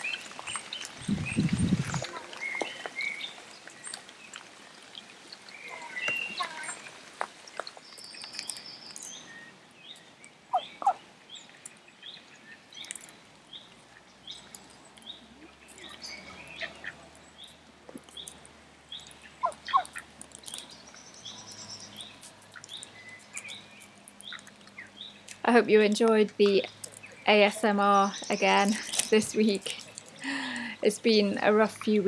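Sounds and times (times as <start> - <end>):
small bird chirping: 0.0 - 4.0, 7.8 - 25.5.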